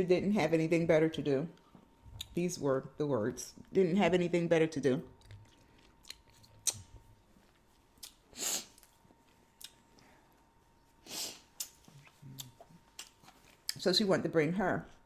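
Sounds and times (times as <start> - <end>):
person chewing food: 5.2 - 10.5, 11.4 - 13.8.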